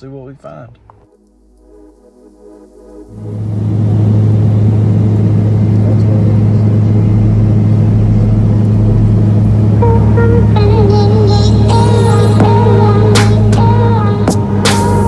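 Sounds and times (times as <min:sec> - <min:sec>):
music: 0:00.0 - 0:04.6, 0:07.8 - 0:15.0
airplane engine and propeller: 0:01.4 - 0:15.0.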